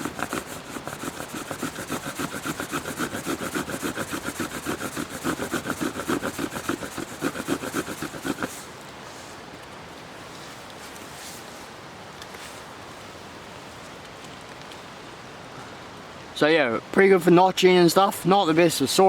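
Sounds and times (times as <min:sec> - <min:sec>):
knife sawing wooden branch: 0:00.0 - 0:09.4.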